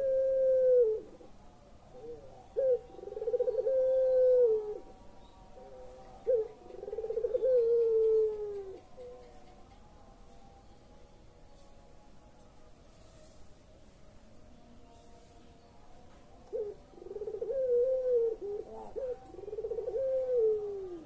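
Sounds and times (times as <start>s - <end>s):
dove cooing: 0.0s - 1.3s, 1.9s - 4.9s, 5.6s - 9.3s, 16.5s - 21.0s.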